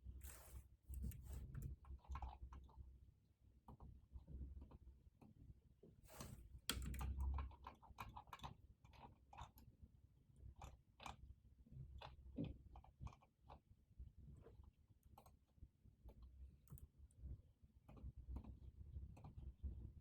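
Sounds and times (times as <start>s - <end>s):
typing on computer keyboard: 6.7s - 9.5s.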